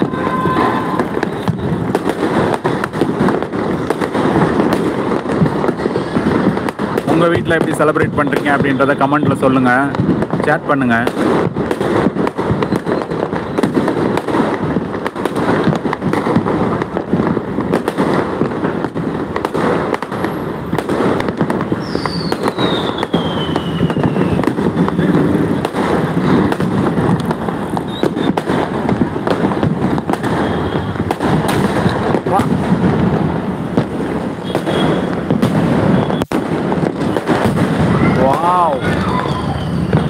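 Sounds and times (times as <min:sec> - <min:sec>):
firework whistle falling in pitch: 0:00.0 - 0:01.8, 0:38.9 - 0:40.0
fireworks and firecrackers banging: 0:00.0 - 0:40.0.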